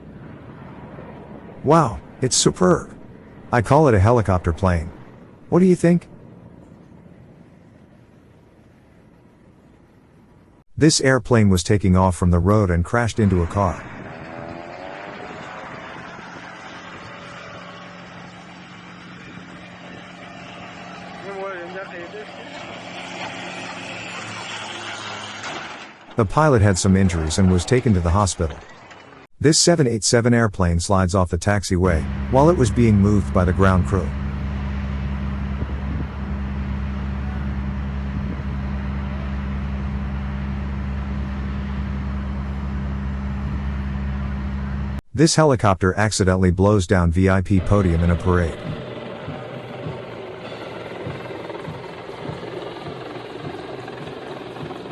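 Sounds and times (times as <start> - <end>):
outdoor noise: 0.0 - 54.9
engine drone: 12.4 - 29.2, 31.8 - 45.0, 47.5 - 54.9
broad rushing noise: 13.3 - 29.0, 47.6 - 54.9.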